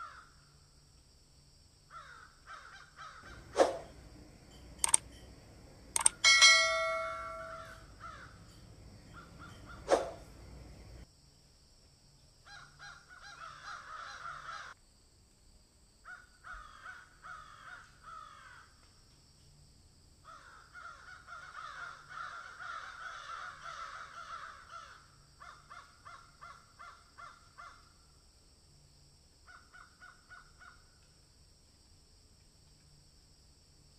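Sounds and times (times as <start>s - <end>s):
birds chirping: 3.1s - 11.0s.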